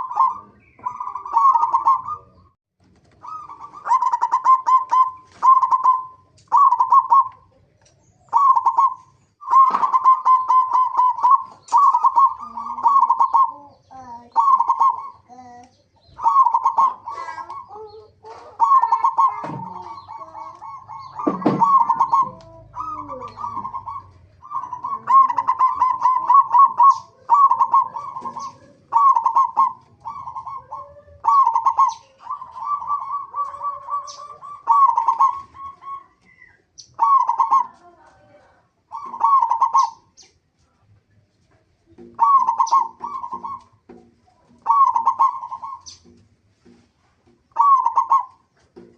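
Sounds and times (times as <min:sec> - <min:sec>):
doves cooing: 0:00.0 - 0:48.9.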